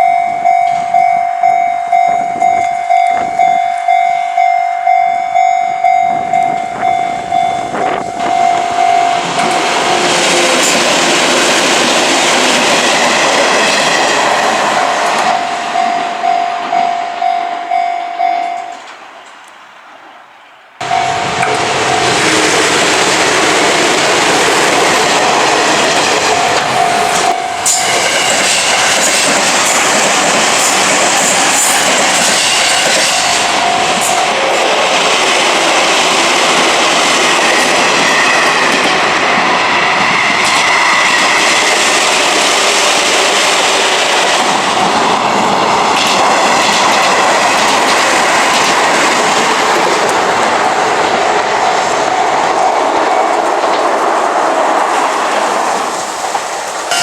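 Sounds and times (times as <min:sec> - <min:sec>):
train wheels clattering: 0:20.8 - 0:57.0.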